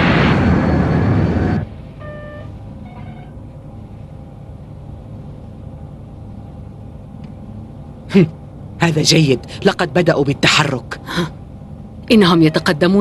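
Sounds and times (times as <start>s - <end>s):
loud noisy sound: 0.0s - 3.1s
low engine rumble: 0.0s - 13.0s.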